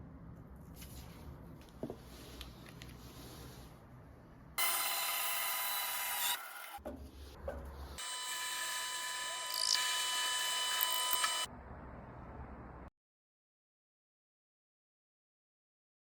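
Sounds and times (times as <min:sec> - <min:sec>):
machine whining: 0:08.0 - 0:11.5.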